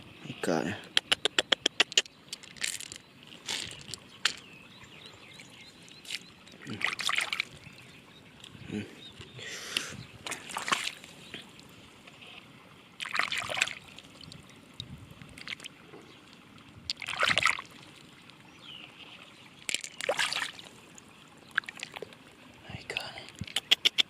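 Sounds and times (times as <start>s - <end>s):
small sharp clicks: 0.9s - 3.0s
water splashing and sloshing: 1.2s - 24.0s.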